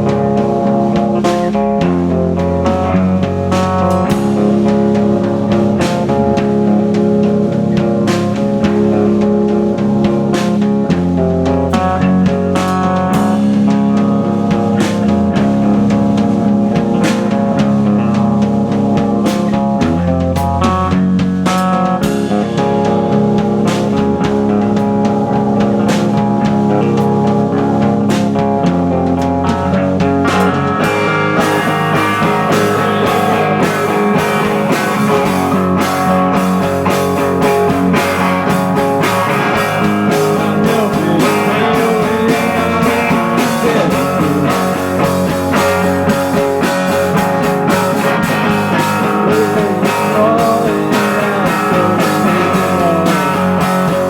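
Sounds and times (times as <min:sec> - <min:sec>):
electric guitar: 0:00.0 - 0:54.0
live rock band playing: 0:00.0 - 0:54.0
steady held drone: 0:22.0 - 0:54.0.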